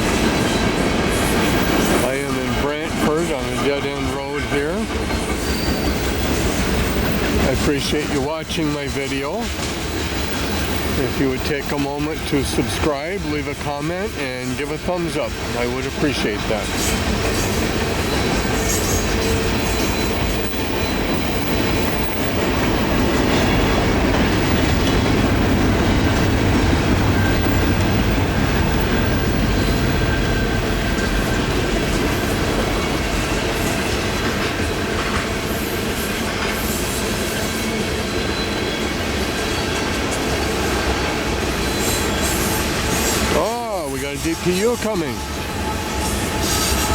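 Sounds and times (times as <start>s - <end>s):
train wheels rumbling on rails: 0.0s - 46.9s
high wheel squeal: 4.6s - 8.0s, 15.0s - 24.9s, 41.6s - 46.9s.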